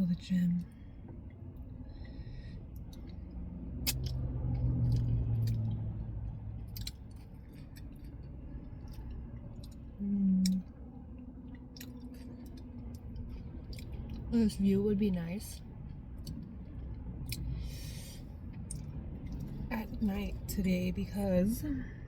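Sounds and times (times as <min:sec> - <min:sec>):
low rumble: 0:00.0 - 0:22.0
wet mouth clicks and smacks: 0:02.8 - 0:05.9, 0:06.7 - 0:10.6, 0:16.2 - 0:16.6
close chewing: 0:11.5 - 0:14.3.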